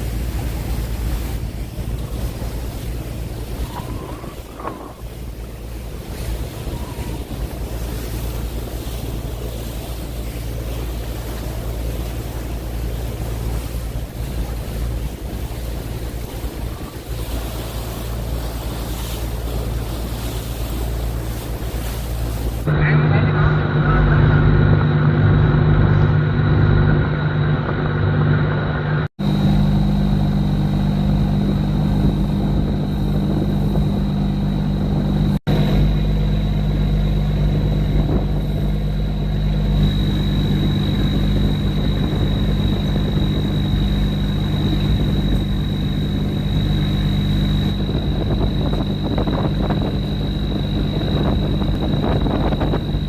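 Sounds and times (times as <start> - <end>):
boat engine drone: 0.0 - 53.0
high whine: 0.0 - 53.0.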